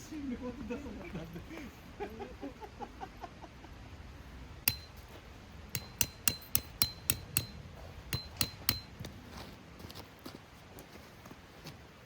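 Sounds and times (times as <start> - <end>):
hammer striking metal tent peg: 4.7 - 9.1.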